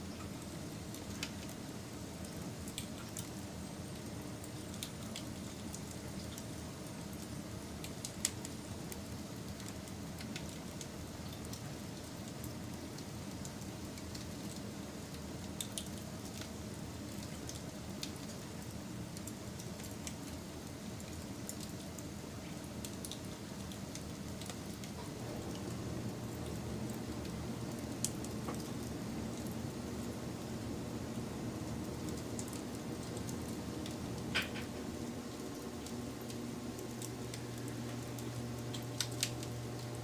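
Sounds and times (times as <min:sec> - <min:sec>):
wood fire crackling and popping: 0:00.2 - 0:40.0.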